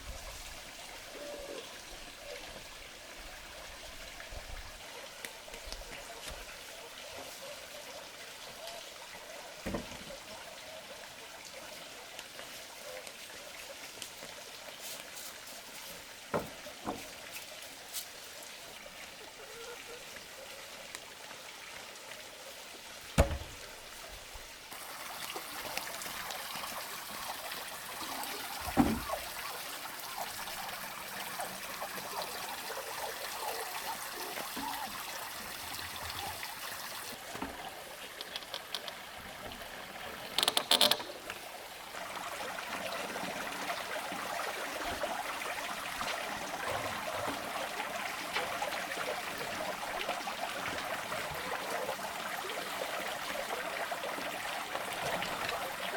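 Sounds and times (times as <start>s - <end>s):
trickling water: 0.0s - 55.9s
sharp knock: 23.2s - 23.6s.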